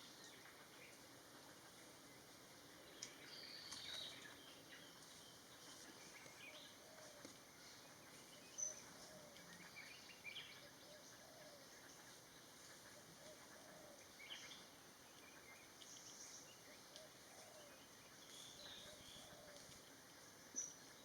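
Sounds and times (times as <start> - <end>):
distant low wavering calls: 5.3 - 21.0.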